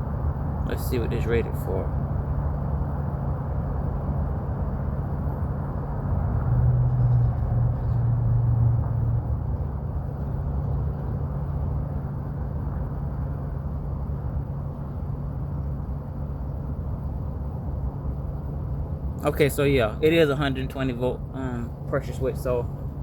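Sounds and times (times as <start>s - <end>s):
low mechanical hum: 0.0s - 23.0s
low rumble: 1.8s - 19.2s.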